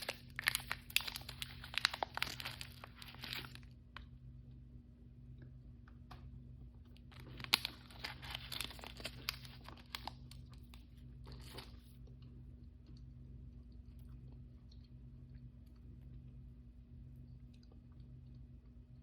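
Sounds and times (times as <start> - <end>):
plastic packaging tearing and crinkling: 0.0 - 3.7, 7.1 - 11.8.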